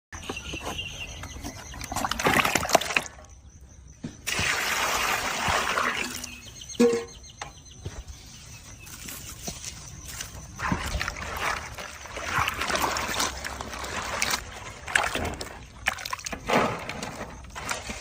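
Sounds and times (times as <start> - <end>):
liquid pouring and splashing: 4.3 - 6.4, 10.6 - 16.4.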